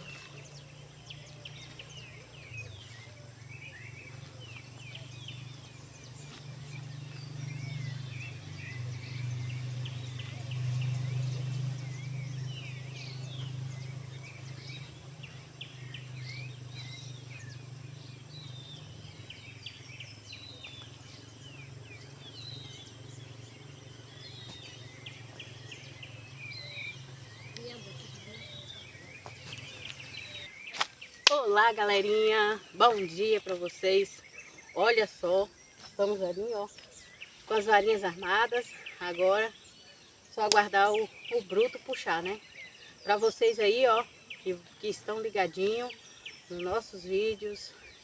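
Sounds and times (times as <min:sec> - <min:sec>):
steady low hum: 0:00.0 - 0:31.2
bird chirps and calls: 0:00.0 - 0:48.0.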